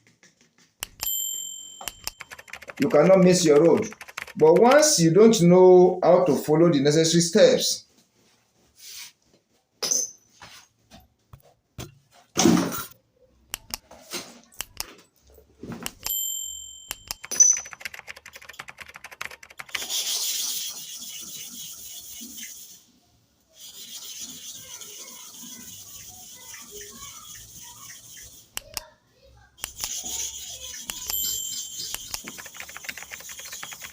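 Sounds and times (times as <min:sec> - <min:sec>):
blade scraping on sharpening stone: 0:23.6 - 0:28.8, 0:29.6 - 0:32.3.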